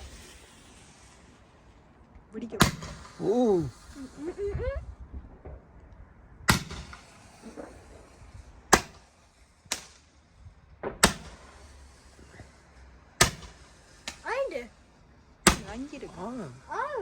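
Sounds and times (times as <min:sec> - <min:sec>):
fireworks bangs with echo: 0:00.0 - 0:01.8, 0:02.4 - 0:05.7, 0:06.4 - 0:17.0.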